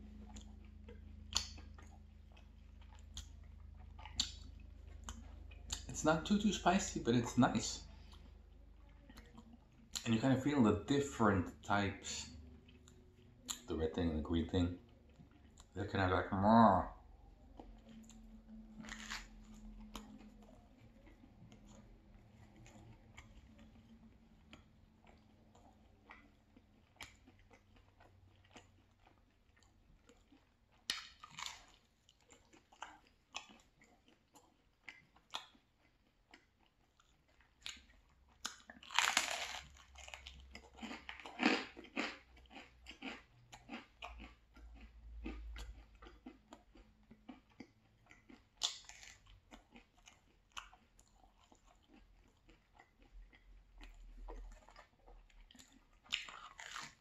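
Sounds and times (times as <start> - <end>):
person chewing pizza: 0.0 - 57.0
bites into crust: 18.8 - 20.4.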